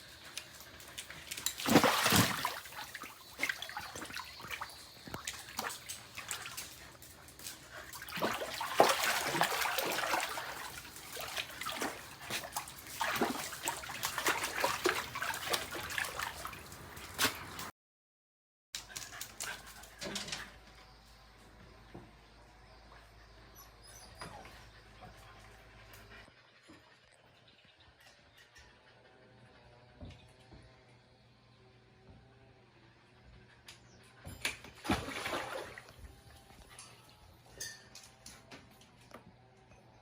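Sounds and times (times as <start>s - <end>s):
water splashing: 0.0s - 17.7s, 34.8s - 35.8s
dog whining and yipping: 23.6s - 24.7s.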